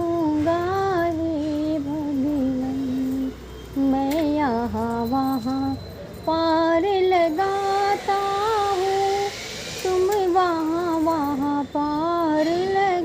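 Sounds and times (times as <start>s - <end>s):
woman singing devotional song: 0.0s - 13.0s.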